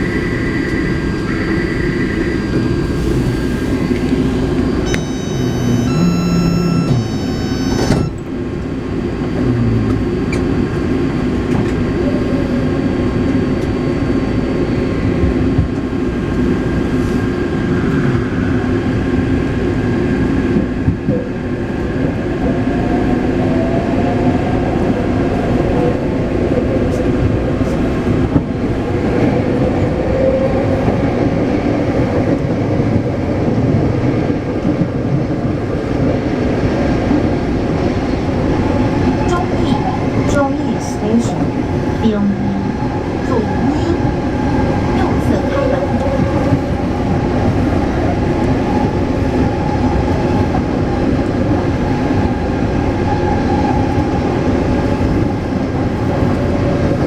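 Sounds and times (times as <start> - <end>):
faint motor tone: 4.9 - 8.2
train wheels rumbling on rails: 7.8 - 57.0.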